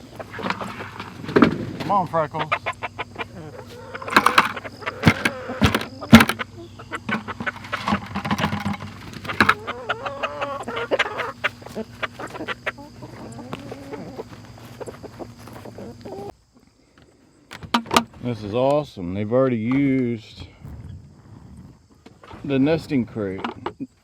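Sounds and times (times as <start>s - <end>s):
hens clucking: 0.0s - 16.7s
sharp clicks: 4.0s - 6.4s.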